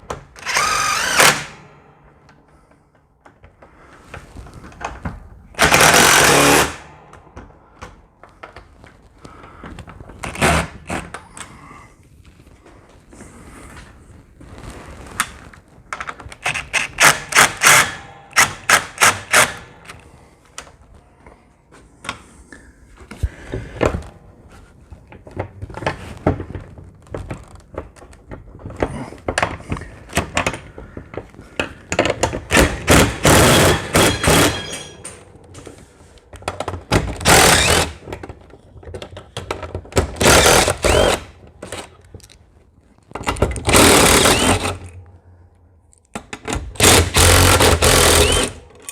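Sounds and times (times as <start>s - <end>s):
cordless power driver whirring: 0.4s - 1.6s, 40.2s - 41.3s, 43.7s - 44.8s, 46.8s - 48.6s.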